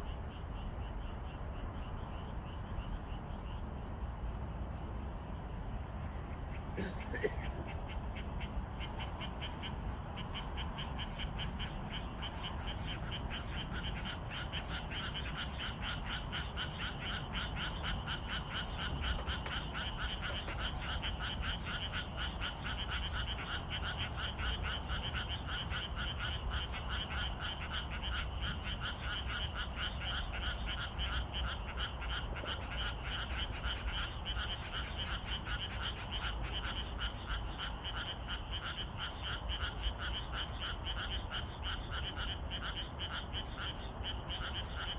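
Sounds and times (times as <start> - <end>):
frogs croaking: 0.0 - 44.9.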